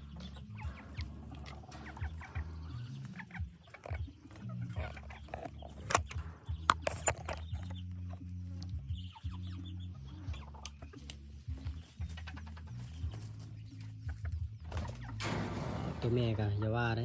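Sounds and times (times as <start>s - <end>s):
junglefowl clucking: 0.2s - 6.8s, 8.9s - 15.4s
sharp clicks and knocks: 5.3s - 7.8s.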